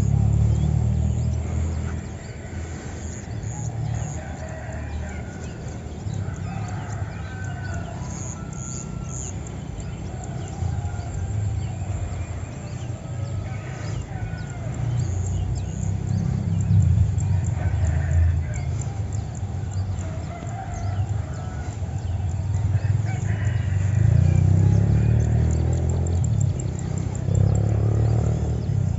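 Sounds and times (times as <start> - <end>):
roosters crowing: 0.0 - 28.9
small birds chirping: 0.0 - 28.9
low rumble: 14.2 - 23.0.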